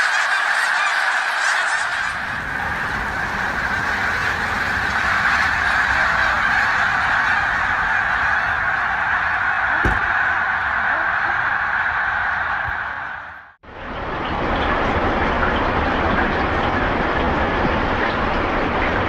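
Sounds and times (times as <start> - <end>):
flock of birds calling: 0.0 - 13.6.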